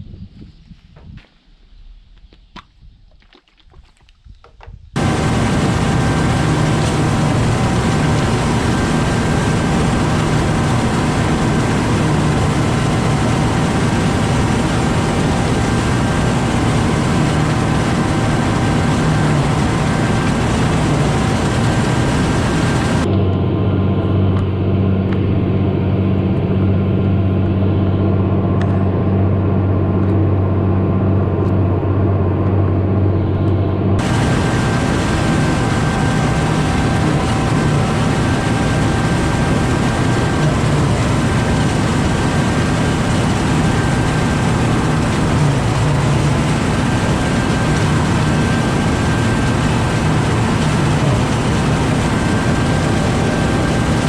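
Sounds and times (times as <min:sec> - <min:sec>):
tractor engine droning: 0:05.0 - 0:54.0.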